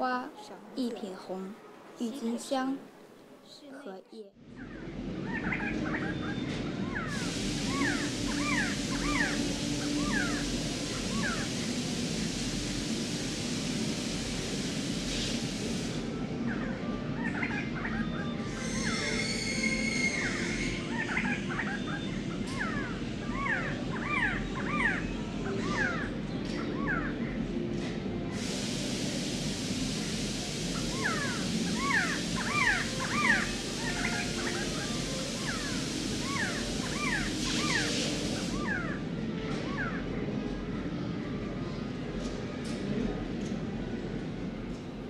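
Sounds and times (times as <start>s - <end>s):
low hum and hiss: 0.0s - 45.0s
bird calls: 4.6s - 11.5s, 17.2s - 27.4s, 30.8s - 39.0s.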